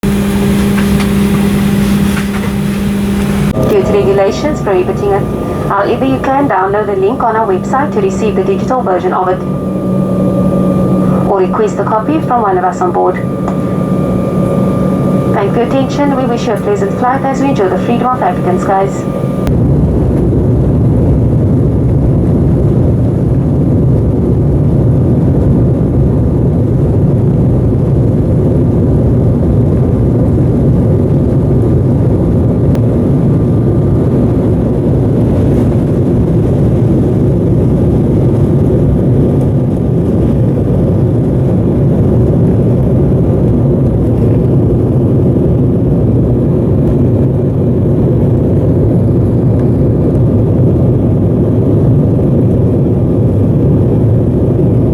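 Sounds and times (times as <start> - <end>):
faint steady whine: 0.0 - 19.5, 32.7 - 52.4
airliner cabin engine hum: 0.0 - 19.6, 32.6 - 54.9.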